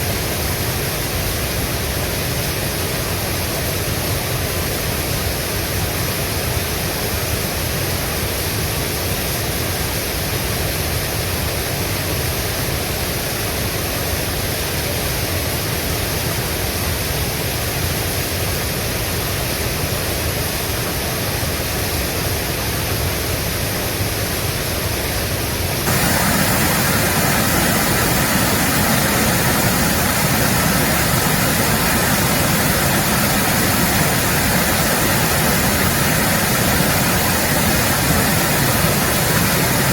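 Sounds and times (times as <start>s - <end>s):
stream water rushing: 18.3s - 39.9s.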